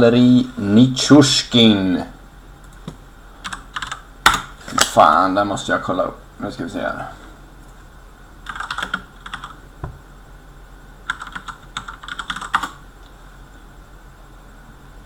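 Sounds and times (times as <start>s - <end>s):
keyboard typing: 2.6s - 4.5s, 8.5s - 9.6s, 11.1s - 12.8s
soft knock: 9.8s - 10.0s.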